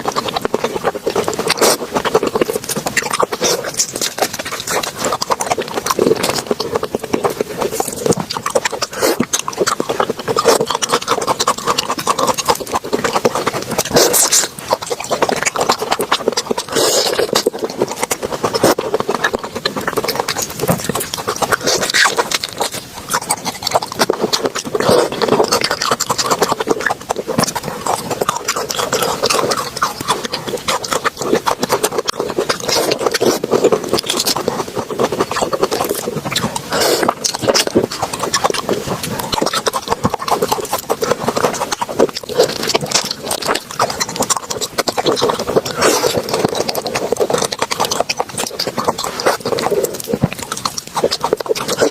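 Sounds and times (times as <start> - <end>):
person chewing wetly: 0.0 - 51.9.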